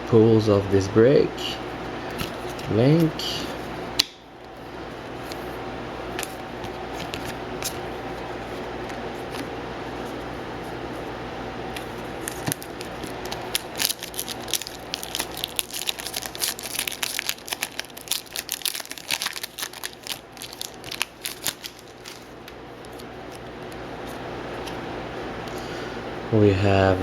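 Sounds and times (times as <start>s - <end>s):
foil wrapper tearing and crinkling: 11.8s - 23.8s.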